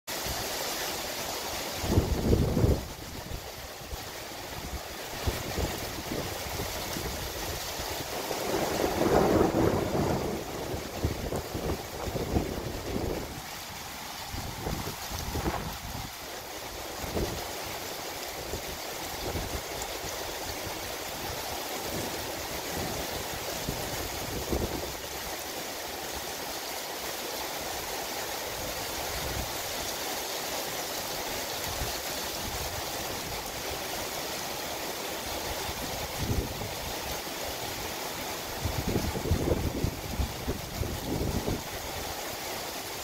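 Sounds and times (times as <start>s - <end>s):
rain falling on trees: 0.1s - 43.0s
wind gusts on microphone: 1.7s - 13.5s, 14.2s - 16.2s, 21.2s - 25.0s, 35.7s - 36.9s, 38.5s - 42.0s.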